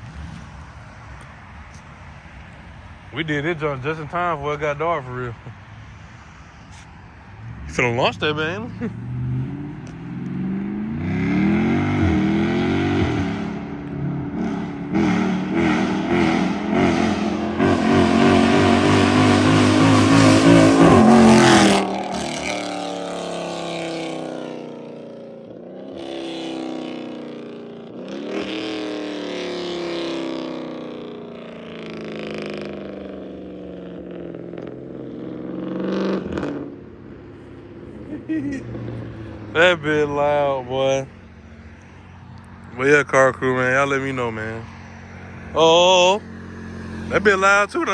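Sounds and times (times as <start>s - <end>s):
car accelerating past with upshifts: 5.8s - 40.0s, 46.2s - 47.4s.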